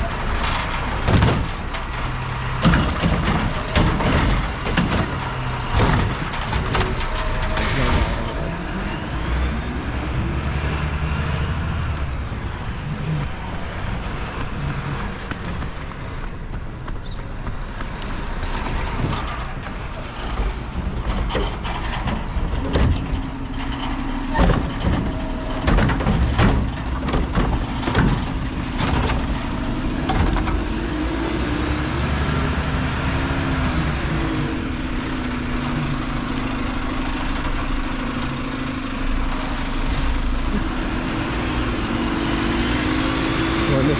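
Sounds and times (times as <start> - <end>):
diesel engine running: 0.0 - 43.9
sharp knocks and clanks: 0.0 - 43.9
air brakes hissing: 38.0 - 40.8.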